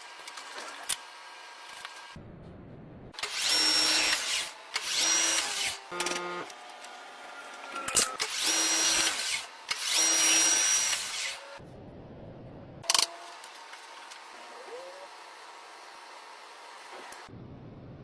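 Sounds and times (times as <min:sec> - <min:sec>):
power tool running: 0:03.2 - 0:11.6.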